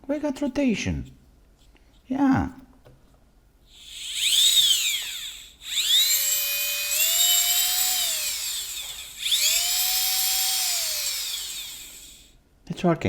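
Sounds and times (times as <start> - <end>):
electric motor whining: 3.8 - 12.3.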